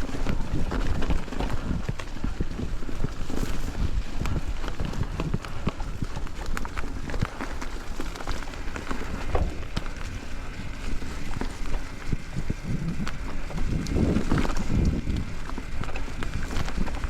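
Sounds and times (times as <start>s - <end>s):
bike clicks and rattles: 0.0s - 17.0s
bike tyres crackling on trail: 0.0s - 17.0s
steady low rumble: 3.8s - 17.0s.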